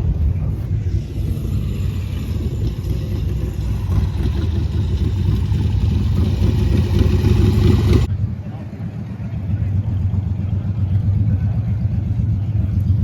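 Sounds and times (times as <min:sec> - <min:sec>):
motorcycle engine running: 0:00.2 - 0:08.3.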